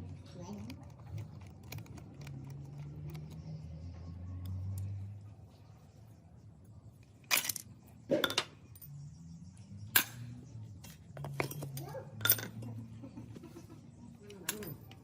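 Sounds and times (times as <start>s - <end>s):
metal tools clinking: 7.2s - 9.0s, 11.2s - 12.9s, 14.2s - 15.0s.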